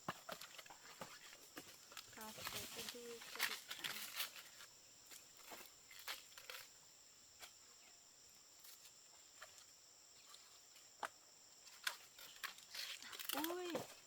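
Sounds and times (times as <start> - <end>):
high-pitched insect trill: 0.0 - 14.0.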